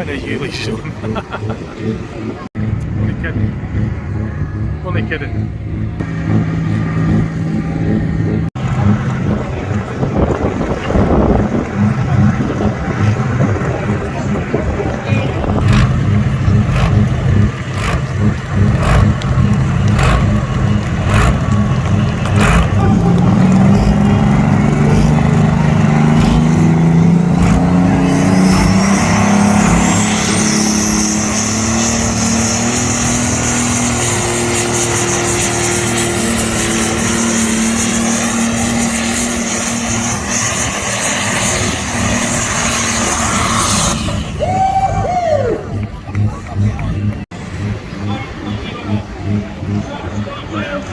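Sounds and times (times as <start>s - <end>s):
tractor engine running hard: 0.0s - 44.4s, 45.6s - 50.9s
high whine: 2.0s - 50.9s
sharp cracks: 15.7s - 30.2s.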